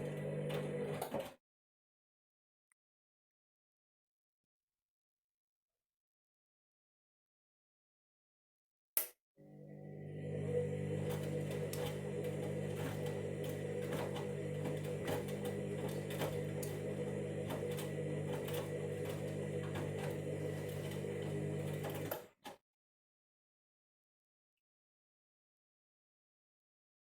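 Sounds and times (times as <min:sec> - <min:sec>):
washing machine motor hum: 0:00.0 - 0:01.3, 0:09.4 - 0:22.4
washing machine clicks: 0:10.6 - 0:22.3.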